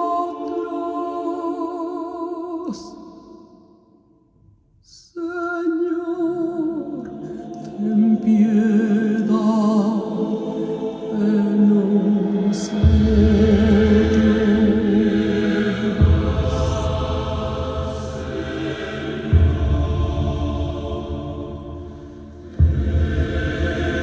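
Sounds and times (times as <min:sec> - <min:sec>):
person singing with vibrato: 0:00.0 - 0:03.3.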